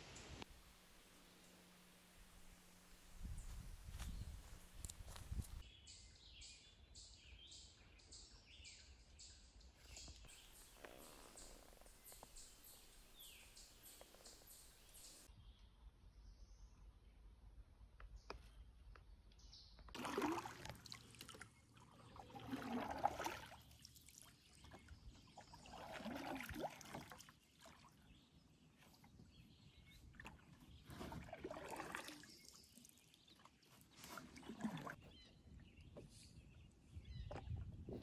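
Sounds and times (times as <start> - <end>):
paddle strokes in water: 20.0 - 28.0, 29.8 - 35.0.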